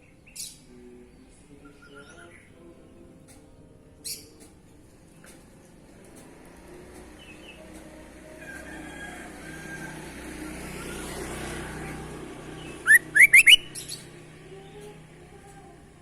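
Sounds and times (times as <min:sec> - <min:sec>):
bird whistling upward notes: 0:12.8 - 0:13.9
faint bird whistles: 0:12.8 - 0:13.9.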